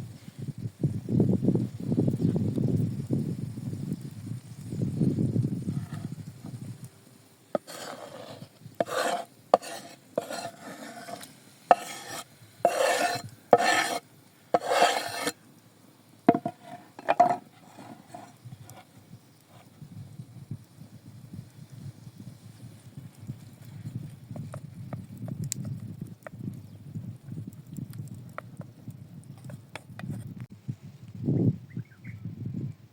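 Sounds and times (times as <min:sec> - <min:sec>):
utensil scraping in a pan: 0:07.5 - 0:15.4, 0:16.3 - 0:18.9.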